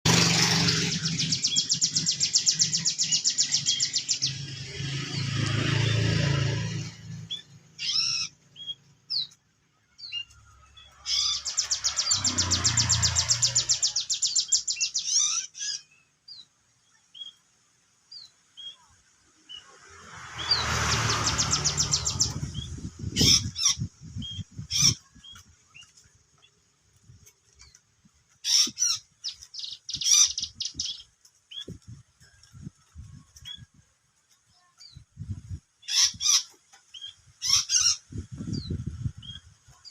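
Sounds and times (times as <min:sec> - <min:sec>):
songbird trilling: 0:00.4 - 0:04.5, 0:07.2 - 0:09.4, 0:10.0 - 0:16.4, 0:20.4 - 0:25.4, 0:28.5 - 0:31.7.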